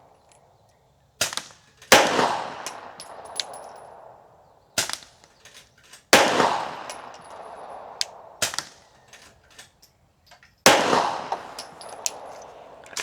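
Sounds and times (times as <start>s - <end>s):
pistol shots echoing: 1.2s - 5.2s, 6.1s - 9.0s, 10.6s - 13.0s.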